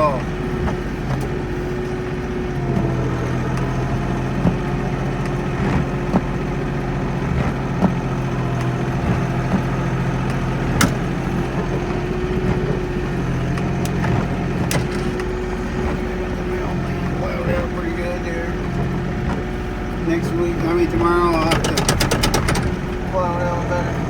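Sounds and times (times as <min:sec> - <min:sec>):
tractor diesel engine running: 0:00.0 - 0:24.0
sharp knocks and rattles: 0:04.2 - 0:16.1, 0:18.6 - 0:24.0.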